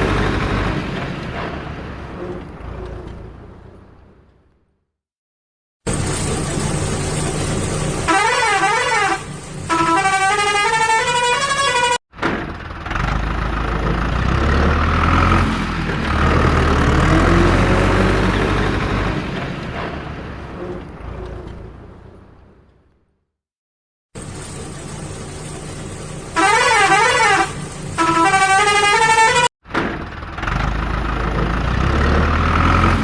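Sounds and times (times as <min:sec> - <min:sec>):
deep truck engine rumble: 0:00.0 - 0:04.7, 0:05.9 - 0:23.1, 0:24.2 - 0:33.0
traffic noise: 0:00.0 - 0:04.8, 0:05.9 - 0:23.2, 0:24.2 - 0:33.0
truck musical horns: 0:08.0 - 0:12.0, 0:26.4 - 0:29.5.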